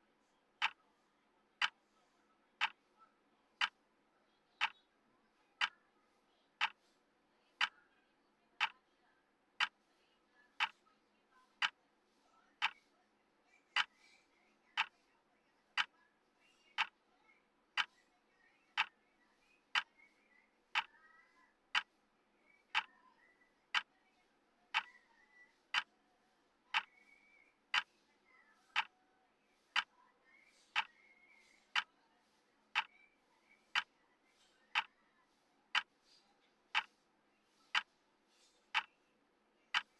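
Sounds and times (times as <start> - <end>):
clock ticking: 0.6 - 0.8, 1.6 - 1.8, 2.6 - 2.9, 3.6 - 3.8, 4.6 - 4.8, 5.6 - 5.8, 6.6 - 6.9, 8.6 - 8.8, 9.6 - 9.8, 10.6 - 10.8, 11.5 - 11.8, 12.6 - 12.9, 13.7 - 14.0, 14.8 - 15.0, 15.7 - 16.0, 16.7 - 17.0, 17.8 - 18.0, 18.7 - 19.0, 19.7 - 20.0, 20.7 - 21.0, 21.7 - 22.0, 22.7 - 23.0, 23.7 - 23.9, 24.7 - 25.9, 26.7 - 28.9, 29.6 - 29.9, 30.5 - 32.0, 32.7 - 33.0, 33.6 - 35.0, 35.7 - 36.1, 36.7 - 37.0, 37.6 - 39.0.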